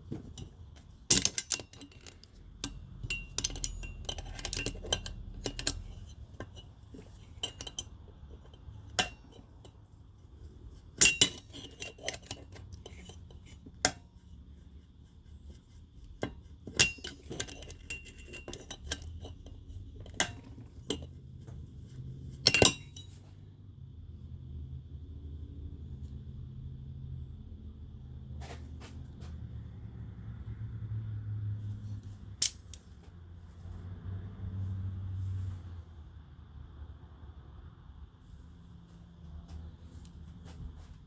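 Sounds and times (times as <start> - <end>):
metal tools clinking on engine parts: 0.0 - 14.2, 16.2 - 23.4.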